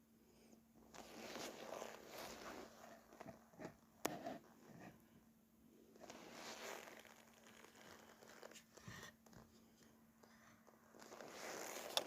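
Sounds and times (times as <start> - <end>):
faint steady low hum: 0.0 - 12.0
small rustles: 0.9 - 3.8, 6.0 - 12.0.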